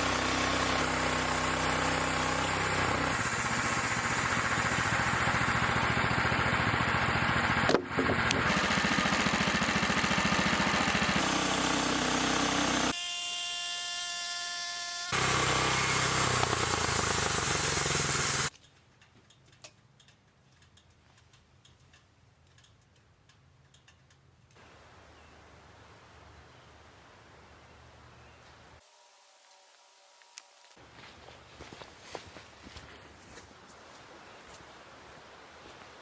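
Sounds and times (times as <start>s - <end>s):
sawmill engine sawing log: 0.0s - 18.5s
faint ticks: 19.0s - 24.6s.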